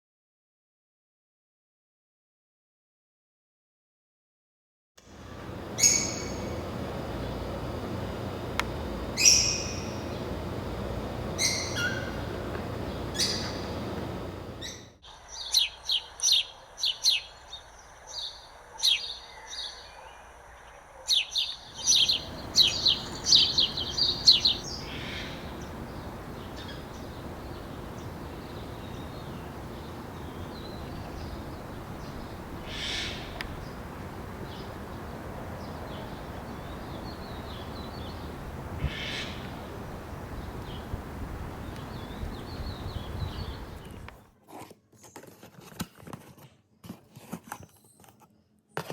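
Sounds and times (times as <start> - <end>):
steady background hiss: 5.0 - 21.0, 21.6 - 44.2
small birds chirping: 5.2 - 44.2.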